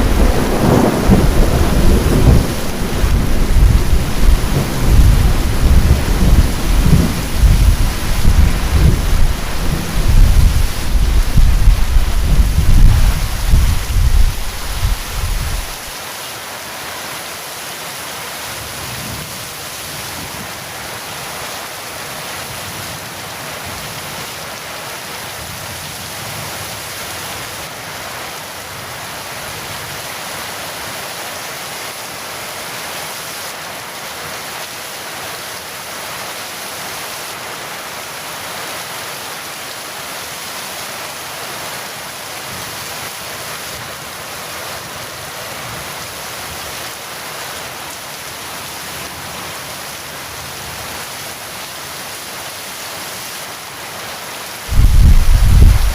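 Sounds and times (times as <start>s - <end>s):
thunder rumble: 0.0s - 15.9s, 54.7s - 55.9s
heavy rain hissing: 0.0s - 55.9s.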